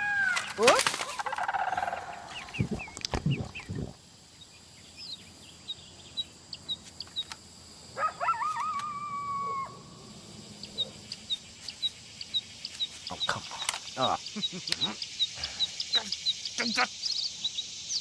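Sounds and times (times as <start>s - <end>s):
small birds chirping: 0.1s - 18.0s
thumps: 2.6s - 4.0s.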